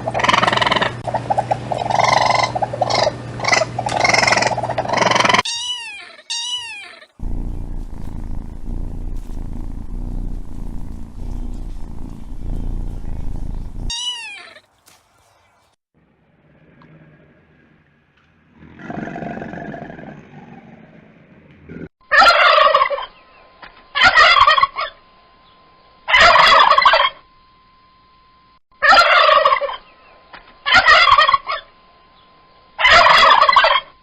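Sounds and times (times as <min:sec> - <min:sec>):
loud animal calling: 0:01.8 - 0:07.2
cat meowing: 0:05.5 - 0:07.1
cat purring: 0:07.2 - 0:13.9.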